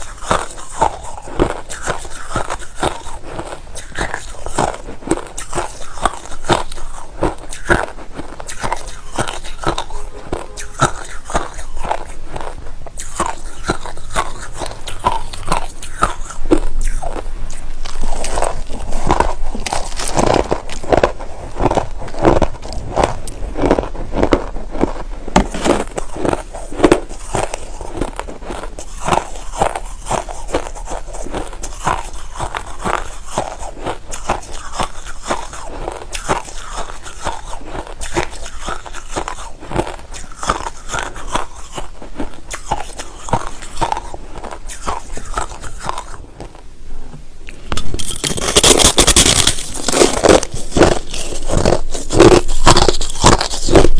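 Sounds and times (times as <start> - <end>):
crushed ice being chewed: 0.0 - 46.7, 47.5 - 53.9.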